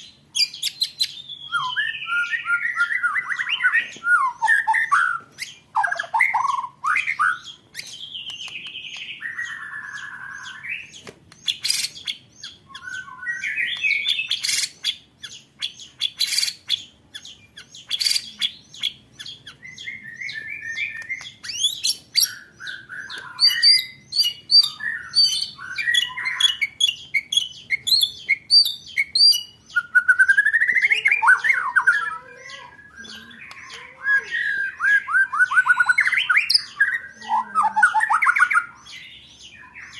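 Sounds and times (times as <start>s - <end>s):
songbird whistling phrases: 0.4s - 39.9s
bird click-like notes: 7.8s - 9.1s
fast chattering bird trills: 13.8s - 20.0s, 20.7s - 39.2s.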